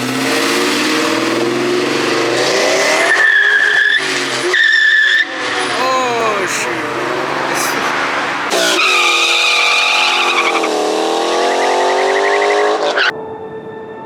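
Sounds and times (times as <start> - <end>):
car engine revving: 0.0 - 5.8, 7.9 - 13.1.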